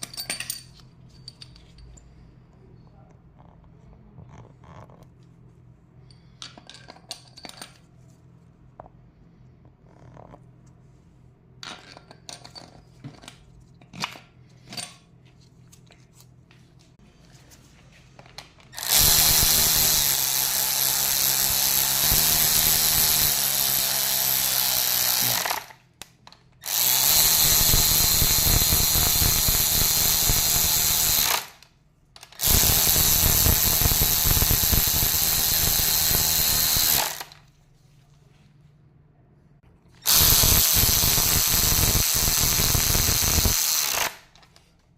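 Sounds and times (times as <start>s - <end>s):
tools clicking and clinking: 0.0s - 2.1s, 6.1s - 7.9s
handheld power tool running: 18.8s - 25.8s, 26.6s - 31.6s, 32.3s - 37.4s, 40.0s - 44.4s.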